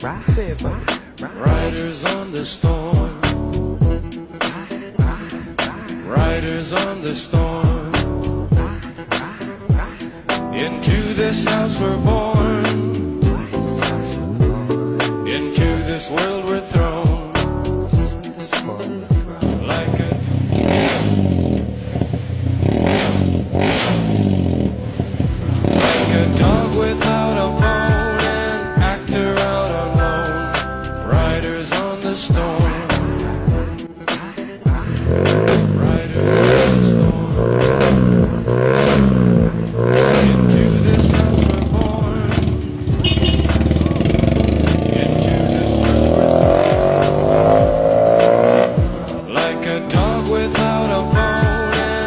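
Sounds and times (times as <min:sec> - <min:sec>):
sharp exhaust bursts: 0:19.4 - 0:27.2, 0:34.9 - 0:49.2
car engine revving: 0:19.4 - 0:27.3, 0:34.9 - 0:49.3.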